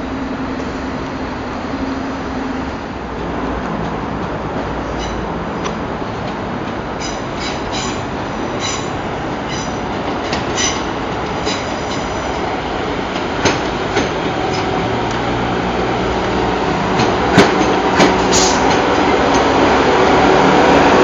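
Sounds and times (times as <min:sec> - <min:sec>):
train rumbling on rails: 0:00.0 - 0:21.0
train wheels squealing: 0:05.0 - 0:05.2, 0:07.0 - 0:09.9.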